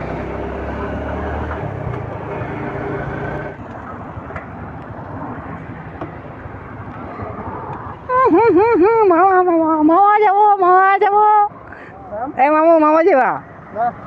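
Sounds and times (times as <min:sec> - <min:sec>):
wind and road noise: 0:00.0 - 0:14.0.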